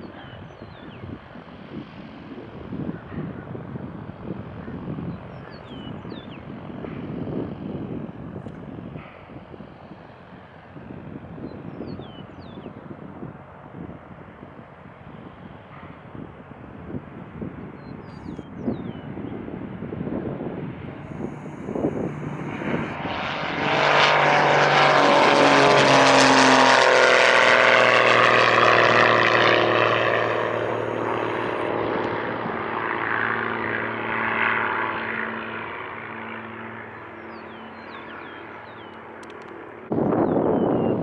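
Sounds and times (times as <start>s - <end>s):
propeller airplane flying past: 0.0s - 40.5s.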